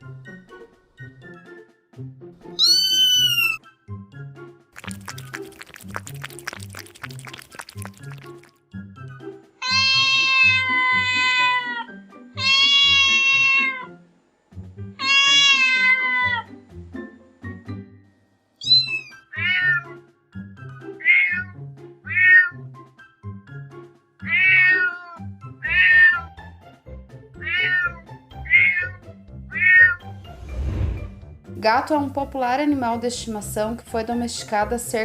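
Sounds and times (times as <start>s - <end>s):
music: 0.0s - 35.0s
cat meowing: 2.6s - 3.6s, 9.6s - 13.9s, 15.0s - 16.5s, 18.6s - 20.0s, 21.0s - 22.6s, 24.2s - 26.3s, 27.4s - 30.0s.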